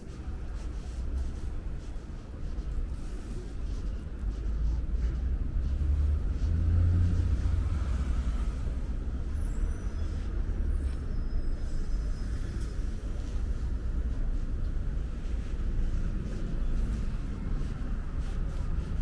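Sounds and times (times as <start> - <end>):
road traffic rumble: 4.0 - 19.0
faint high squeal: 9.2 - 13.1.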